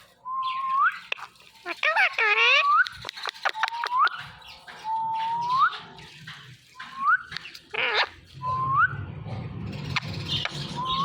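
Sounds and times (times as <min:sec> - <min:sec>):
parrot whistled calls: 0:00.2 - 0:05.8
parrot harsh squawk: 0:01.6 - 0:02.8, 0:07.7 - 0:08.2.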